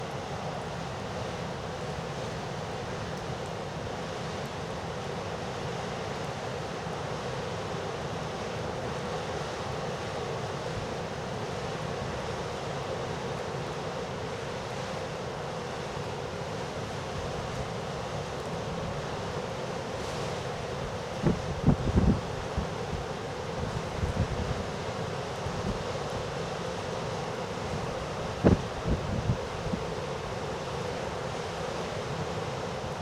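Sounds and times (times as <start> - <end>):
heavy surf washing in: 17.1 - 33.0
wind blowing across microphone: 20.8 - 26.3, 27.7 - 30.0.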